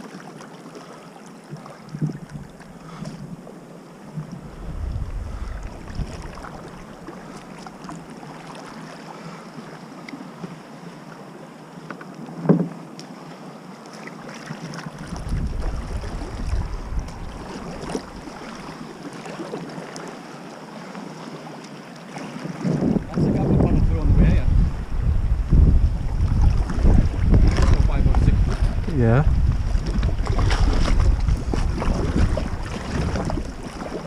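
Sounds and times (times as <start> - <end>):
water splashing from paddle: 0.0 - 3.4, 4.0 - 10.5, 13.8 - 23.2, 26.0 - 34.0
wind rumbling on microphone: 4.1 - 7.7, 14.9 - 19.0, 22.4 - 34.0.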